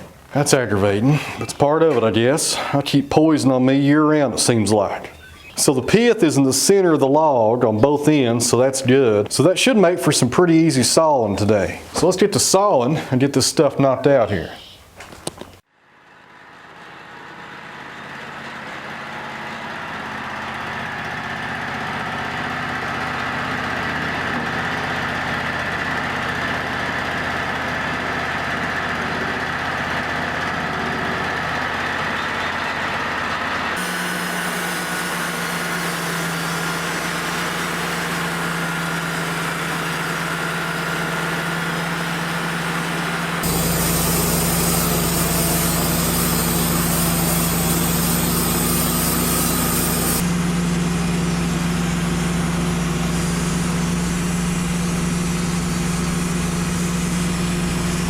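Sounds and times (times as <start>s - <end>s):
band sawmill running: 16.2s - 58.0s.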